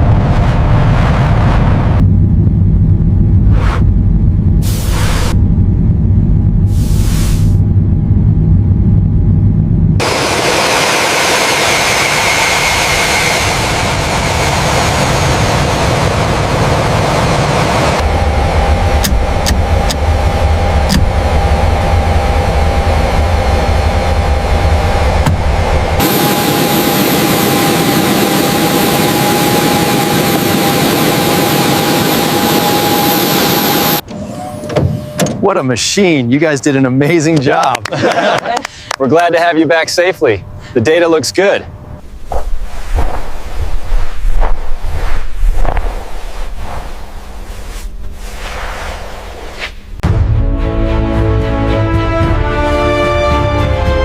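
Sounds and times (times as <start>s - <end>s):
jet engine roar: 0.0s - 35.1s
jet engine low rumble: 0.0s - 35.2s, 38.7s - 51.5s
faint high engine whine: 1.6s - 45.0s.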